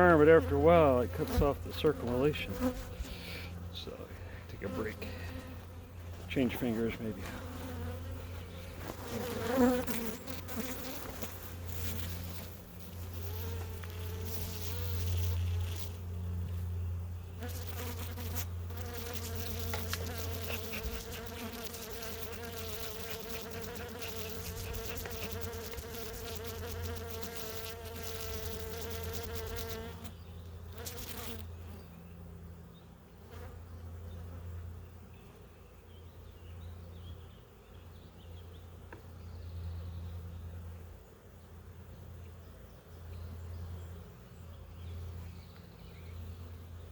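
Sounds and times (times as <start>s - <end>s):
honeybees buzzing: 0.0s - 31.8s.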